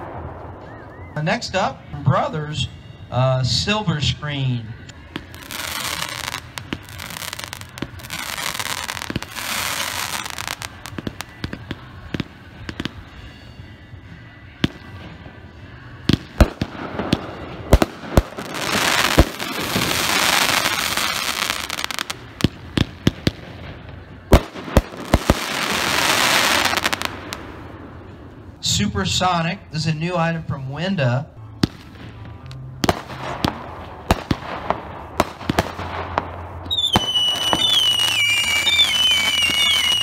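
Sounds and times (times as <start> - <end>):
firework launch and burst reports: 0.0 - 13.4, 16.1 - 40.0
firework hissing crackle: 5.0 - 28.6, 31.7 - 40.0.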